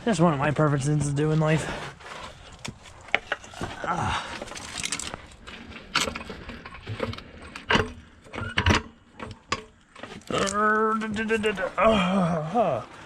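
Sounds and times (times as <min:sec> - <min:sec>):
metal tools clinking and rattling: 0:03.1 - 0:11.6.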